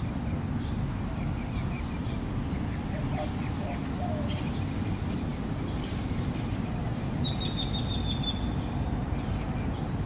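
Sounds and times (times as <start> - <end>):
bird trill: 7.2 - 8.5.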